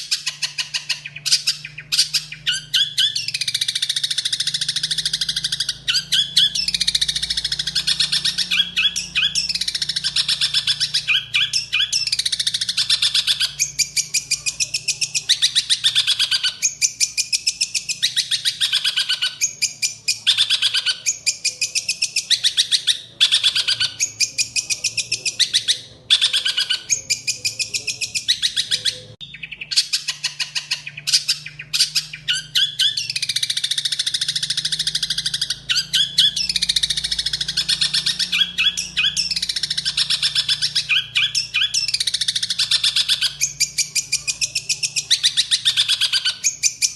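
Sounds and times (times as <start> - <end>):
songbird chattering song: 0.0 - 46.9.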